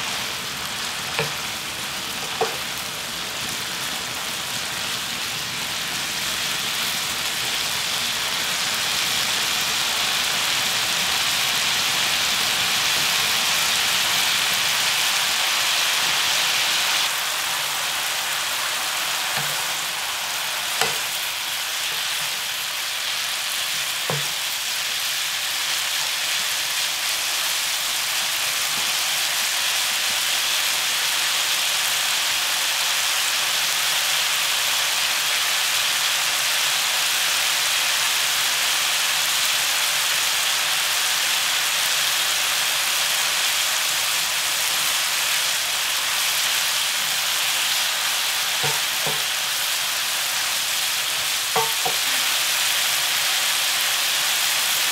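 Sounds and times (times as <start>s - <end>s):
stems sizzling in oil in a pan: 0.0s - 54.9s
spatulas knocking against pan: 2.3s - 2.6s, 19.4s - 19.7s, 20.8s - 21.2s, 24.1s - 24.4s, 48.6s - 49.3s, 51.6s - 52.1s.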